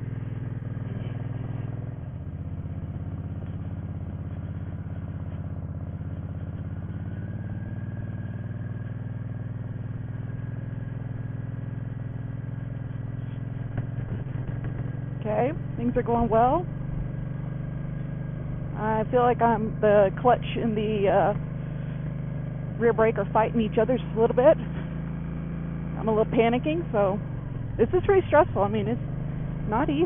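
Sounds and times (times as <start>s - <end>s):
motorcycle engine at low revs: 0.0s - 30.0s.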